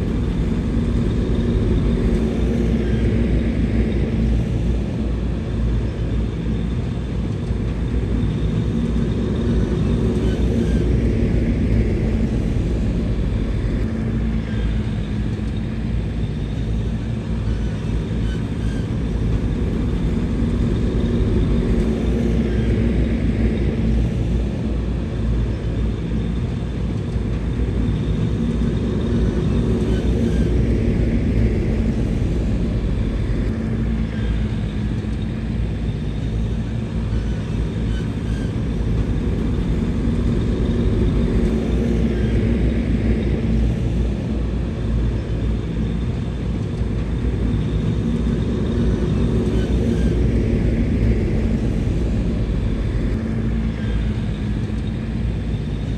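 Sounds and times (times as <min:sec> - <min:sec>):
bulldozer diesel engine: 0:27.4 - 0:55.9.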